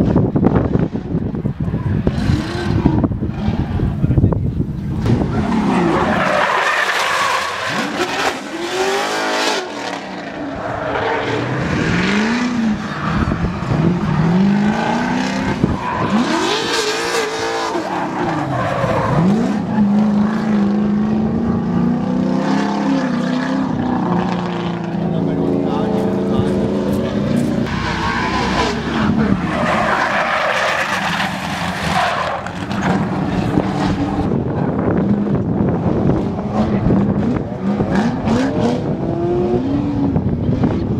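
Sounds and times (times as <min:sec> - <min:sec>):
car engine revving: 0:00.4 - 0:40.9
tyres squealing and skidding: 0:05.1 - 0:20.4, 0:26.0 - 0:34.7.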